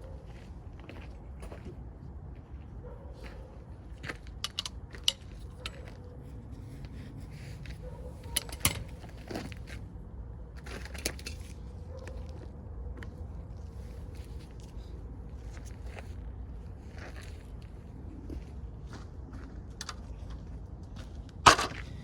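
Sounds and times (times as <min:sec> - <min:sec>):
metallic clinks of hand tools: 0:08.3 - 0:09.0.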